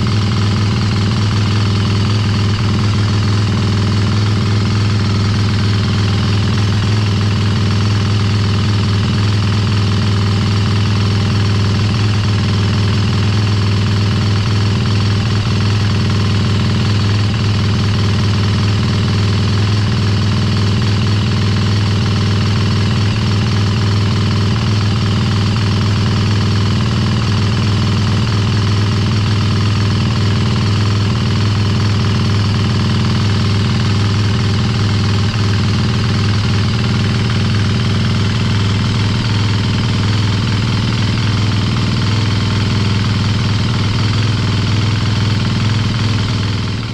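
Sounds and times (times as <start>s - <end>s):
motorcycle engine idling: 0.0s - 46.9s.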